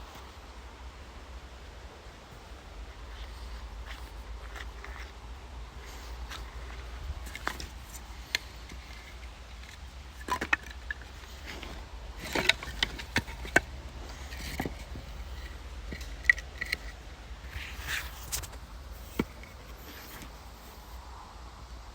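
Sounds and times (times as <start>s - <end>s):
wooden boards knocking and clattering: 10.2s - 15.2s.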